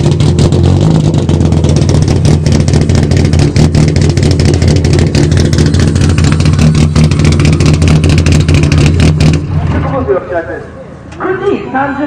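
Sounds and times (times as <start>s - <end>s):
car engine lumpy idle: 0.0s - 11.4s.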